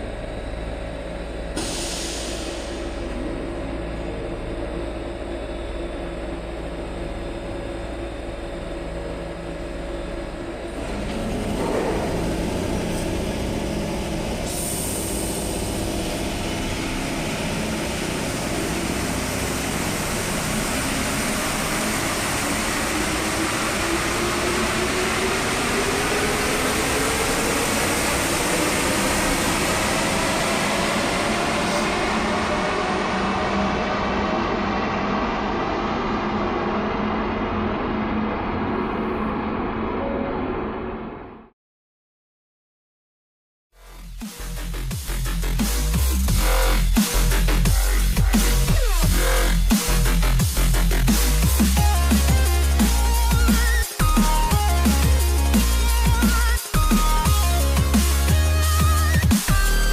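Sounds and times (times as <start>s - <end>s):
metro train running noise: 0.0s - 40.9s
motor whine rising in pitch: 2.3s - 40.0s, 45.3s - 59.9s.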